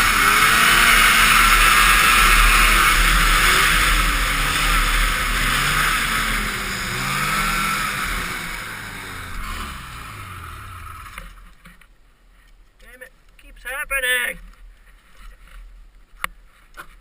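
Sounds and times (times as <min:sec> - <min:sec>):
snowmobile engine running: 0:00.0 - 0:11.5.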